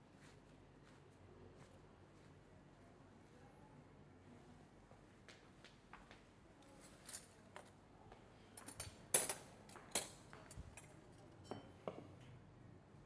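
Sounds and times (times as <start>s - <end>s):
tableware clinking: 8.6s - 12.1s.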